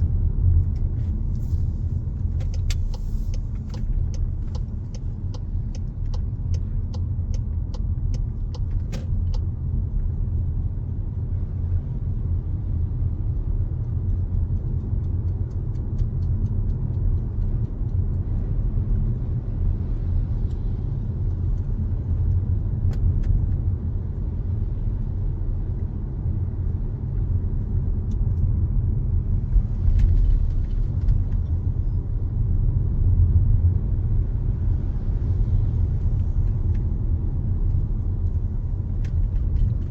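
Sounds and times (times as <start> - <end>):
road and wind noise inside car: 0.0 - 39.9
regular ticks: 2.1 - 9.5, 13.0 - 19.6.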